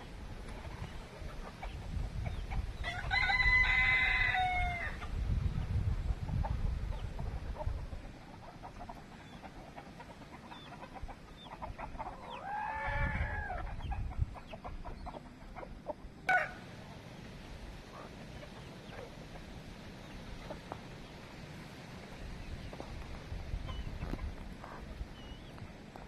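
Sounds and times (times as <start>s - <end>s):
wind rumble on microphone: 0.0s - 8.9s, 10.9s - 15.6s, 17.4s - 26.0s
chickens clucking: 0.0s - 26.0s
chicken squawk: 1.2s - 5.1s, 7.5s - 16.6s
rooster crowing: 2.8s - 5.0s.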